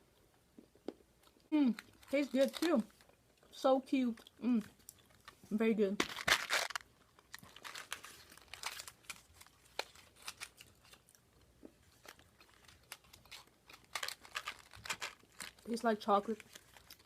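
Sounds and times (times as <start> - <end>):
person chewing crunchy snack: 4.2 - 5.4, 6.3 - 15.7.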